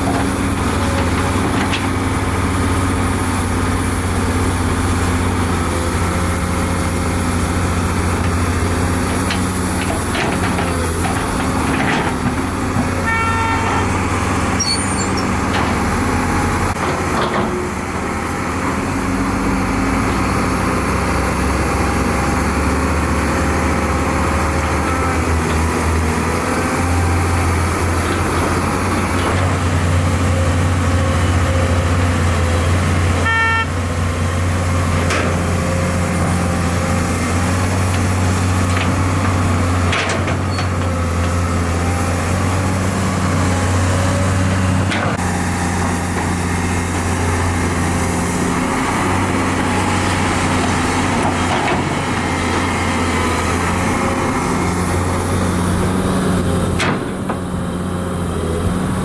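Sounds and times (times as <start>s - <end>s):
heavy diesel engines under load: 0.0s - 59.0s
short horn toots: 13.0s - 14.0s, 33.2s - 33.9s.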